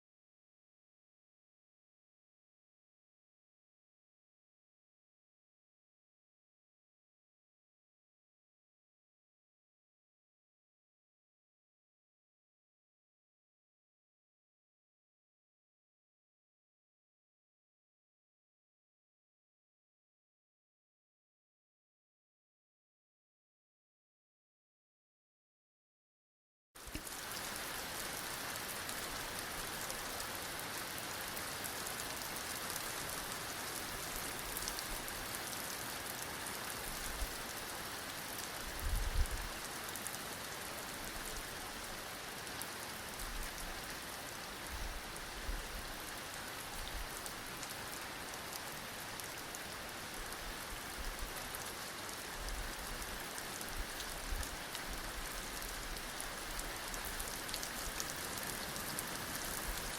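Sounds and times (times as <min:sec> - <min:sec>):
heavy rain falling: 0:26.8 - 0:59.9.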